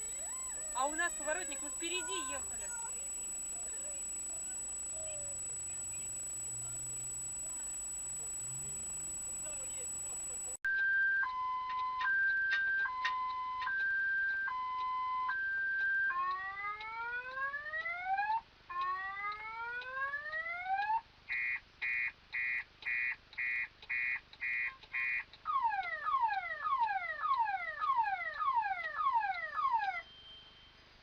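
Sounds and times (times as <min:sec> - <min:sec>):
car alarm siren: 0:00.0 - 0:10.6, 0:14.5 - 0:21.0, 0:25.5 - 0:30.1.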